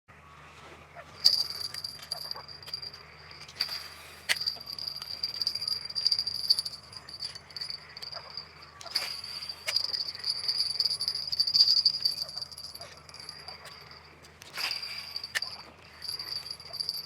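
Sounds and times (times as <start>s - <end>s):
fishing reel whirring: 4.4s - 14.0s.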